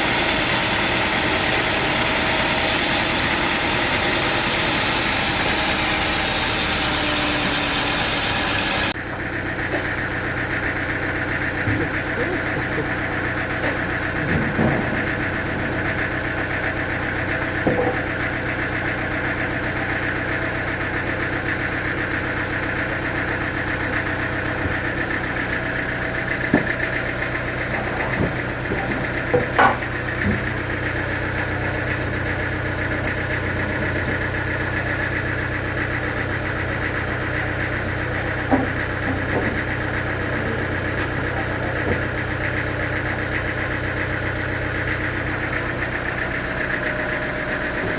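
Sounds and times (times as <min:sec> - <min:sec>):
engine running steadily: 0:00.0 - 0:47.9
short knocks and clunks: 0:11.5 - 0:18.3, 0:24.4 - 0:32.1, 0:38.2 - 0:43.2.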